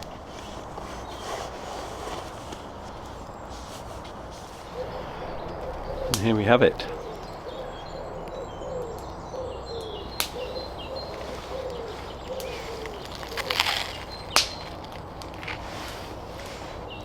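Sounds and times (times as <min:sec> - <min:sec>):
small birds chirping: 0:00.0 - 0:17.0
low repeated note: 0:04.7 - 0:10.2.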